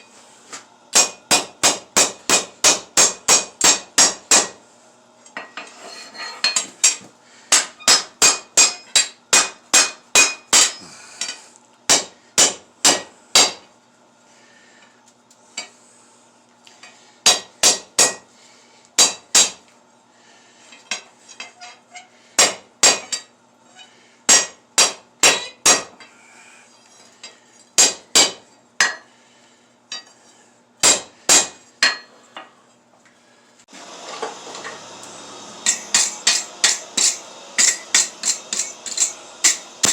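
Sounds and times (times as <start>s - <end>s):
hammer striking steel on anvil: 0.9s - 4.6s, 6.4s - 13.7s, 17.2s - 18.3s, 19.0s - 19.6s, 22.4s - 23.3s, 24.3s - 26.0s, 27.8s - 29.1s, 30.8s - 32.1s, 35.6s - 39.9s.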